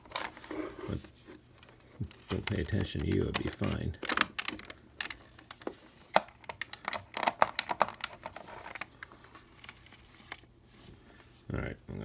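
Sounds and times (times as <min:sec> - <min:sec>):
plastic case parts clicking: 0:02.0 - 0:09.0.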